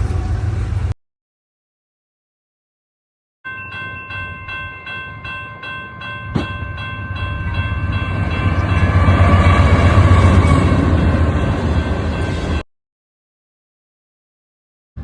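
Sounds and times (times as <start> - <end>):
train rumbling: 0.0 - 1.0, 3.9 - 12.6
crossing bell ringing: 3.5 - 12.6.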